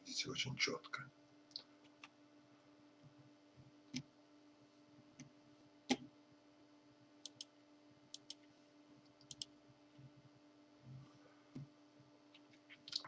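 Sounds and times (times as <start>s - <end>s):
faint steady hum: 0.0s - 13.0s
computer mouse clicking: 7.2s - 7.5s, 8.1s - 8.5s, 9.2s - 9.5s, 12.3s - 13.0s.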